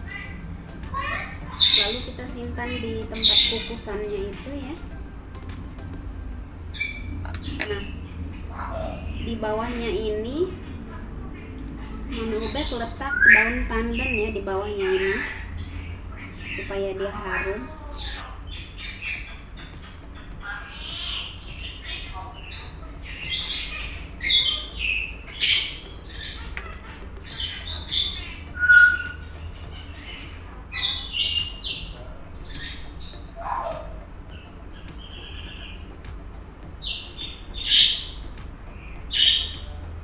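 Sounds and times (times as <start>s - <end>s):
bird chirping and squawking: 0.0s - 36.0s, 36.8s - 39.8s
bird whistle: 27.4s - 29.3s.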